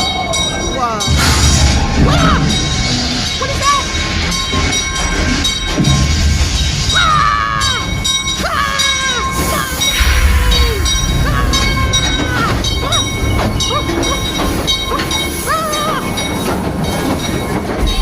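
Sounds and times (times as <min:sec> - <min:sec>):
ride train rumbling on track: 0:00.0 - 0:18.0
pitched falling calls: 0:06.8 - 0:16.6.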